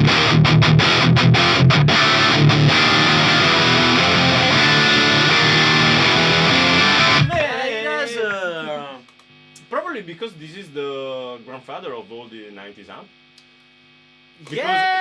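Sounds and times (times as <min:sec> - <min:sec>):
distorted electric guitar: 0:00.0 - 0:07.5
person speaking: 0:07.2 - 0:09.2, 0:14.4 - 0:15.0.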